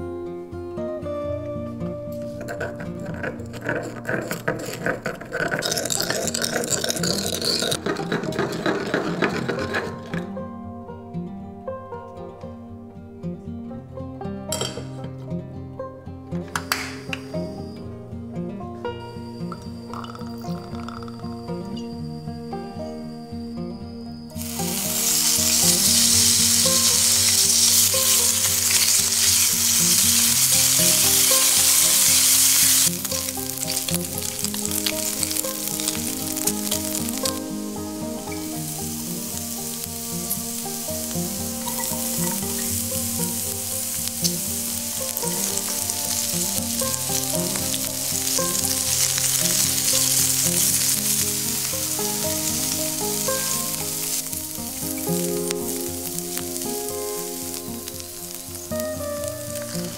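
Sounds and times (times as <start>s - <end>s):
meat sizzling in hot oil: 2.5s - 8.0s, 24.4s - 59.9s.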